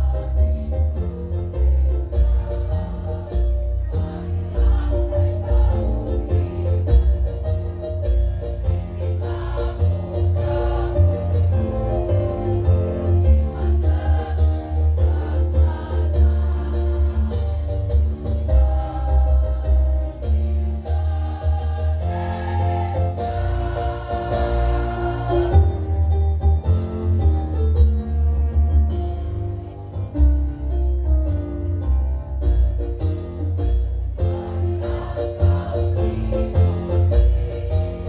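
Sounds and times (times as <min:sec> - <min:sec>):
women's choir singing: 0:00.0 - 0:07.8, 0:08.5 - 0:26.0, 0:34.2 - 0:38.0
instrumental music with heavy bass: 0:00.0 - 0:38.0.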